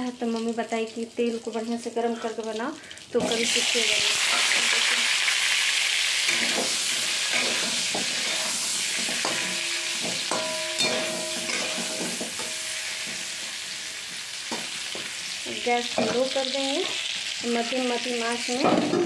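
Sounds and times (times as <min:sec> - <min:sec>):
food sizzling in hot oil: 0:00.0 - 0:19.0
metal spatula scraping wok: 0:03.2 - 0:17.3.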